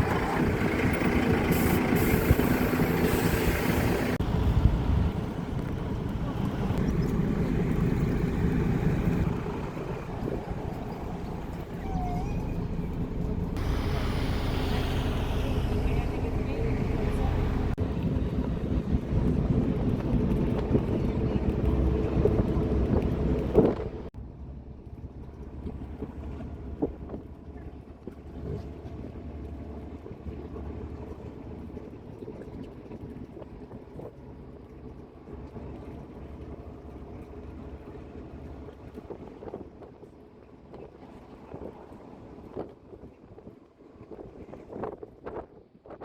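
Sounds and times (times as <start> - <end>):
wind on microphone: 0.0 - 24.1
engine droning: 0.0 - 32.1.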